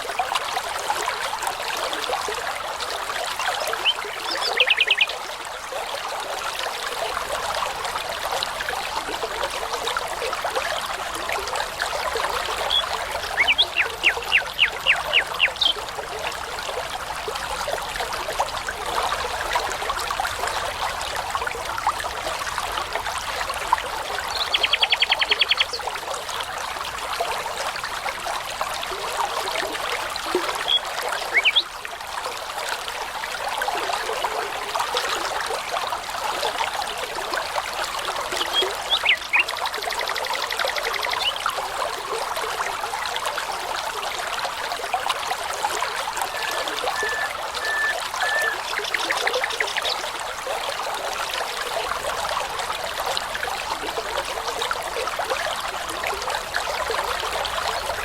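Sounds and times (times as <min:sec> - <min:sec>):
brook trickling: 0:00.0 - 0:58.0
songbird singing: 0:03.8 - 0:05.1, 0:12.6 - 0:15.8, 0:24.3 - 0:25.8, 0:30.5 - 0:31.7, 0:38.4 - 0:39.5, 0:46.3 - 0:50.0.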